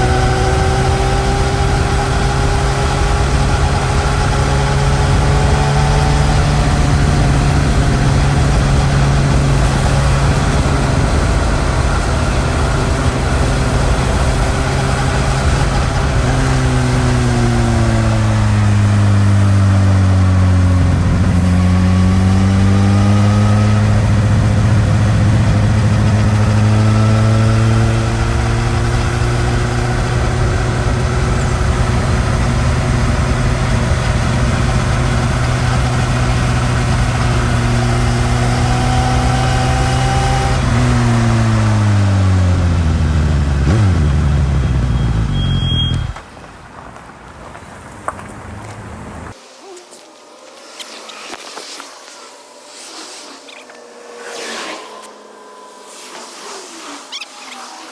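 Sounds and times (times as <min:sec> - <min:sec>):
wind noise: 0:00.0 - 0:19.6
motorcycle engine: 0:00.0 - 0:46.4
road noise: 0:00.0 - 0:57.9.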